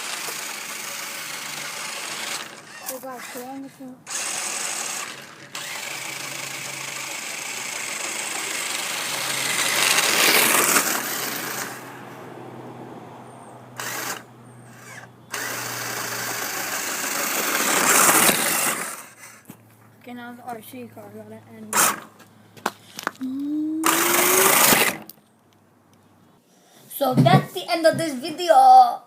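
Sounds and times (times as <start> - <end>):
toy car electric motor whirring: 0.0 - 11.9, 13.8 - 19.5, 21.7 - 22.1, 23.8 - 25.2.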